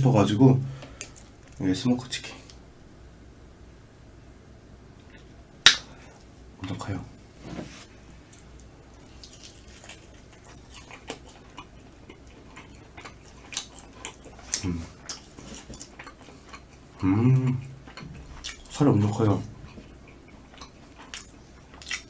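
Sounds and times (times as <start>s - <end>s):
close chewing with mouth smacks: 8.3s - 22.0s
person humming: 17.0s - 17.7s.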